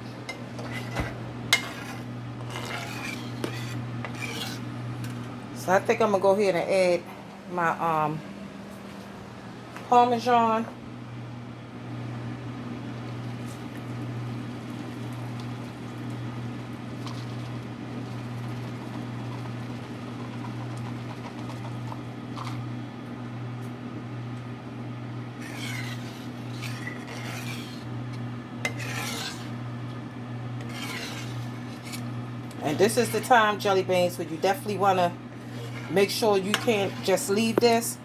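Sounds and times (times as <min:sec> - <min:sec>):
cheese scraping in a pan: 0:00.4 - 0:05.2, 0:14.7 - 0:22.7, 0:25.3 - 0:37.9.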